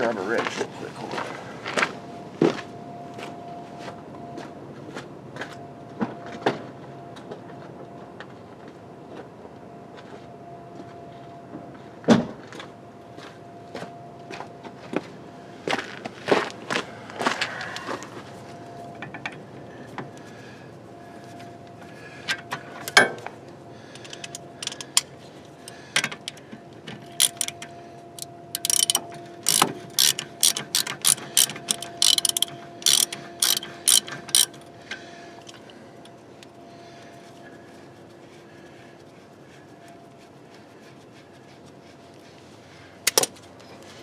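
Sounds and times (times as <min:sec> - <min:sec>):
ratchet wrench clicking: 0:27.0 - 0:34.7, 0:35.4 - 0:35.7.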